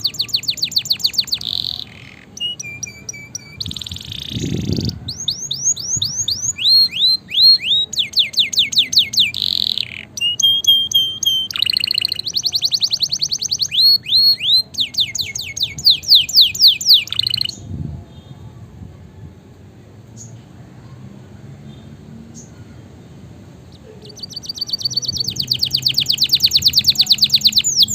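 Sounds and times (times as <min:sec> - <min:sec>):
canary singing trilled song: 0:00.0 - 0:17.7, 0:23.6 - 0:27.9.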